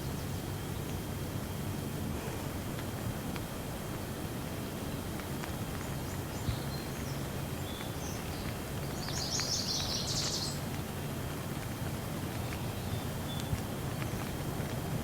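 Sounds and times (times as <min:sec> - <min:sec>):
light rain hiss: 0:00.0 - 0:15.0
bird chirping: 0:06.3 - 0:10.6.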